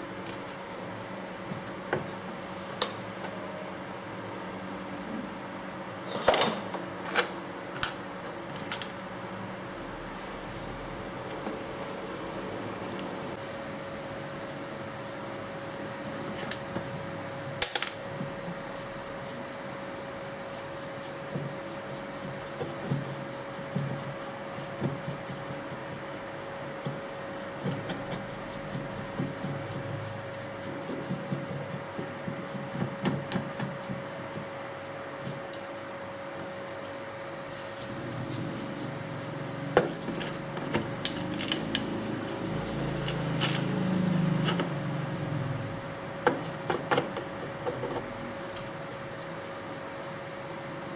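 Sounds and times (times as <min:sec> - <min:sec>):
scraping and rubbing of parts: 0:37.6 - 0:44.7.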